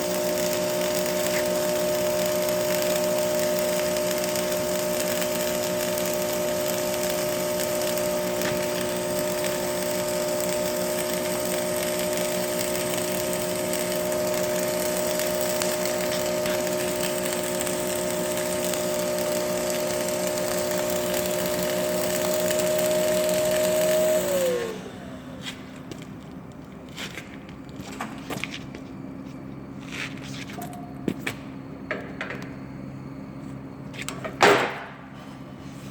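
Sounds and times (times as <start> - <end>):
power tool motor running: 0.0 - 25.9.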